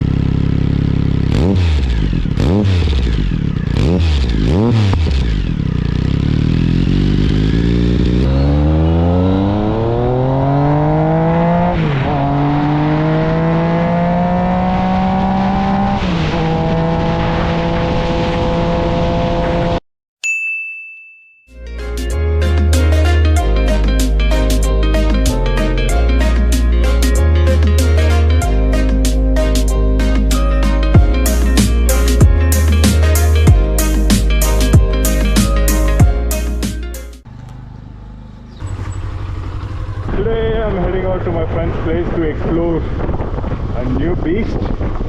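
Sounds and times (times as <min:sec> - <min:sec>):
motorcycle engine revving: 0:00.0 - 0:19.8, 0:31.0 - 0:41.9.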